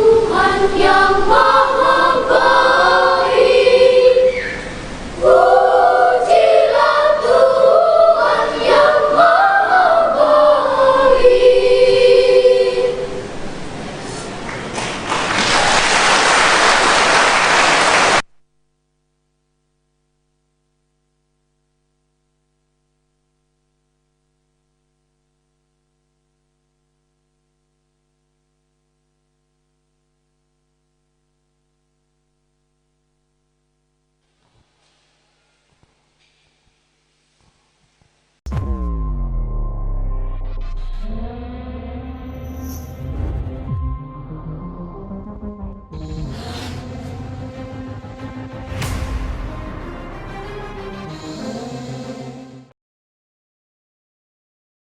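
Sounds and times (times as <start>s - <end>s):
children's choir singing: 0.0s - 13.7s
applause: 14.4s - 18.3s.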